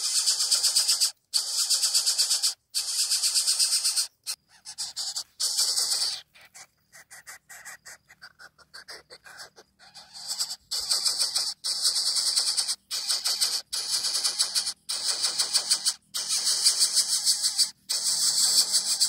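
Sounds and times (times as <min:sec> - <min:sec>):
bird chick raspy hissing calls: 0:00.0 - 0:19.0.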